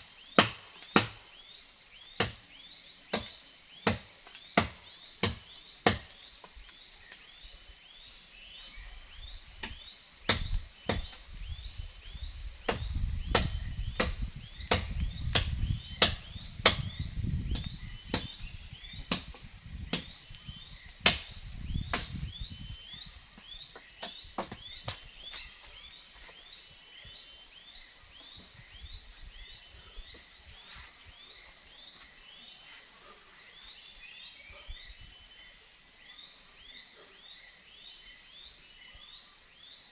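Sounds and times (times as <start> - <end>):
insect drone with chirps: 0.0 - 39.9
blade chopping into wood: 0.4 - 1.2, 21.0 - 22.2.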